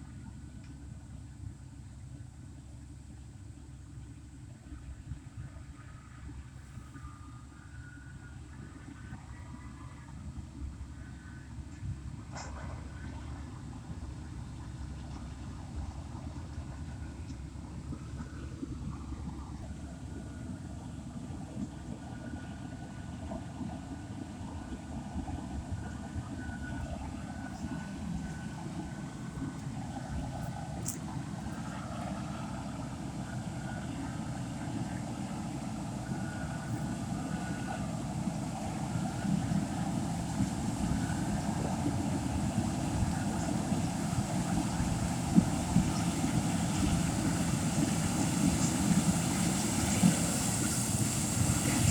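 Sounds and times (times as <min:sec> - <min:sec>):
harvesting machinery engine rumble: 0:24.1 - 0:51.9.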